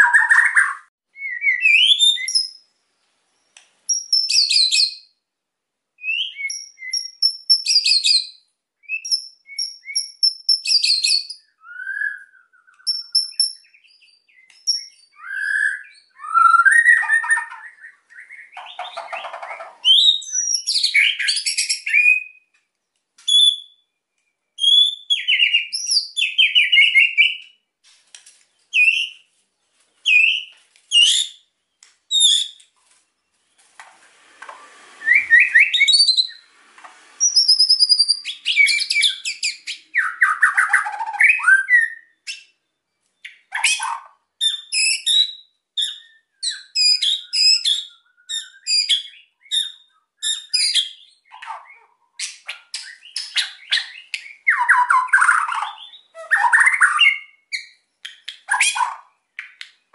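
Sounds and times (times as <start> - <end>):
bird singing whistled phrases: 0.0 - 2.6, 3.9 - 5.1, 6.0 - 22.5, 23.3 - 23.9, 24.6 - 27.6, 28.7 - 29.2, 30.0 - 31.4, 32.1 - 32.6, 35.0 - 36.5, 37.2 - 42.6, 43.2 - 57.8.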